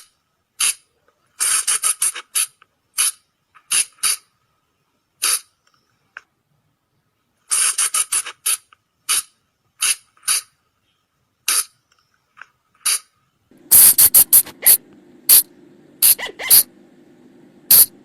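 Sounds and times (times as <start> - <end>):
low steady hum: 13.4 - 18.0.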